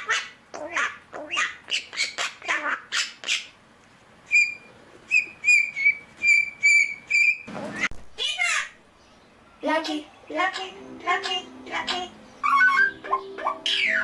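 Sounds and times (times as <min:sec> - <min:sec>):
myna bird chattering: 0:09.8 - 0:14.0.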